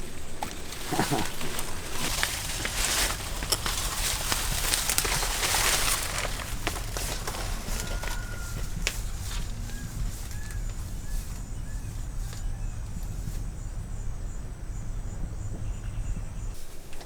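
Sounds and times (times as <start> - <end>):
insect trilling: 0.0 - 16.6
low rumble: 0.0 - 16.6
bird chirps: 3.1 - 16.6.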